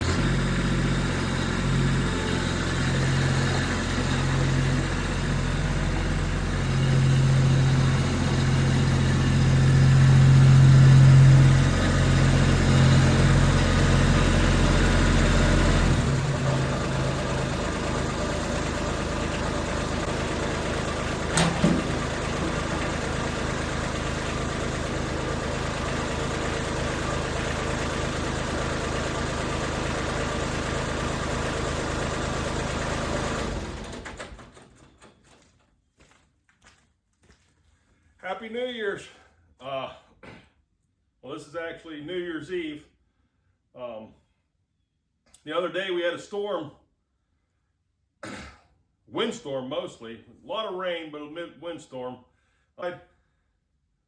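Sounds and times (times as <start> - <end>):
engine running: 0.0 - 34.9.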